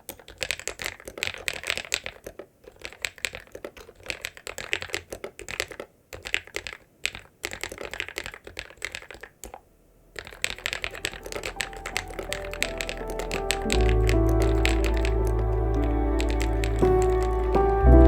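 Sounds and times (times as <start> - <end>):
mechanical keyboard typing: 0.0 - 9.6, 10.2 - 17.6
background music: 10.4 - 18.0.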